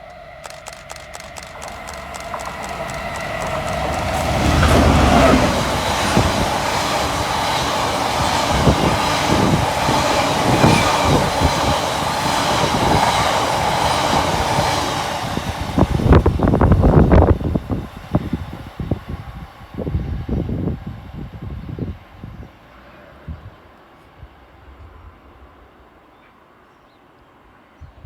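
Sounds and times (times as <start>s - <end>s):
wheels clicking over rail joints: 0.0s - 18.2s
train wheels rushing on rail: 0.0s - 26.0s.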